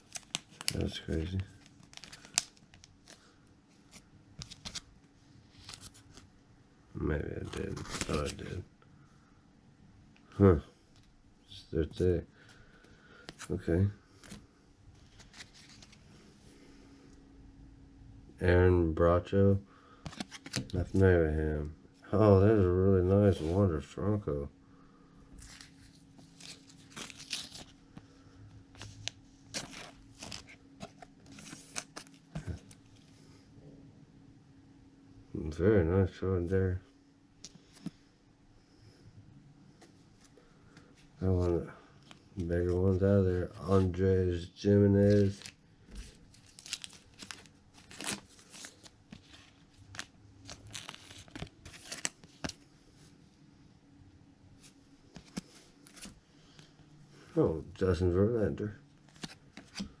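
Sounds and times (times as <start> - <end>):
cards and foil wrappers rustling: 0.0 - 4.9, 7.4 - 8.6, 15.0 - 16.1, 20.0 - 21.0, 25.4 - 33.0, 44.9 - 52.6, 59.0 - 60.0.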